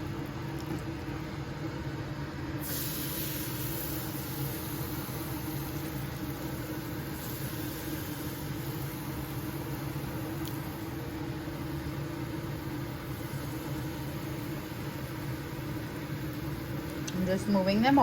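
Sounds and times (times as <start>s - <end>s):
air fryer fan hum: 0.0s - 18.0s
high hiss: 2.6s - 5.9s.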